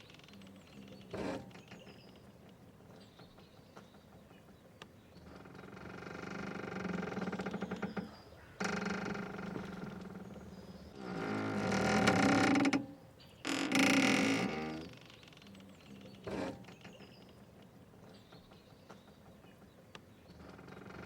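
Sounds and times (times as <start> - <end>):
mooring ropes creaking and squeaking: 1.0 - 2.0, 5.3 - 17.4.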